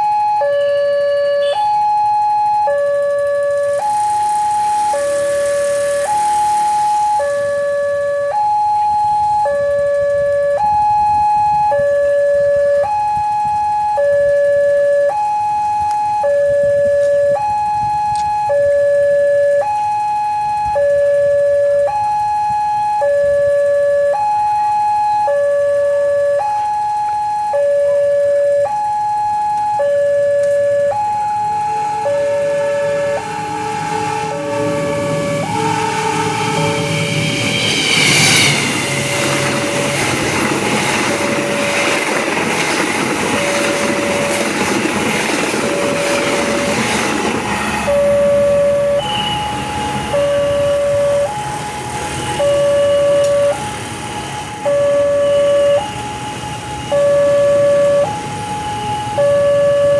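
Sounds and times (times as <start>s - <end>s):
level-crossing two-tone alarm: 0.0s - 59.9s.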